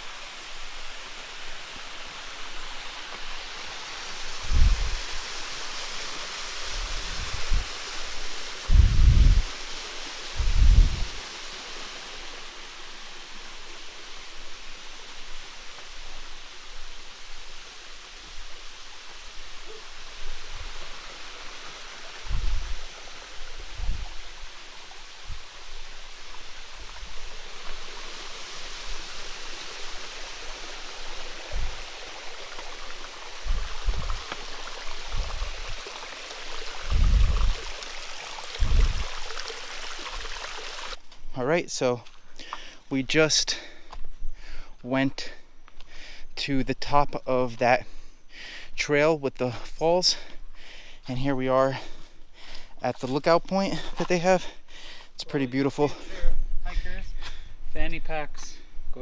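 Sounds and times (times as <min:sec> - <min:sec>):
stream water flowing: 0:00.0 - 0:41.0.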